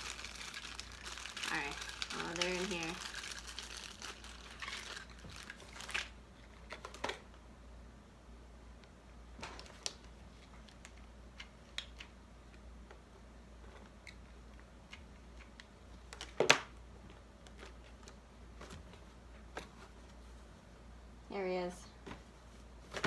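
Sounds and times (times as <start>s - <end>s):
craft supplies rummaged: 0.0s - 7.2s.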